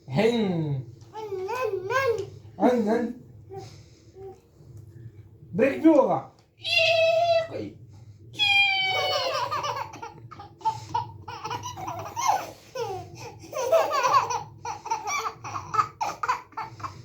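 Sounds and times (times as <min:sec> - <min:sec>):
babies laughing: 0:08.8 - 0:17.0.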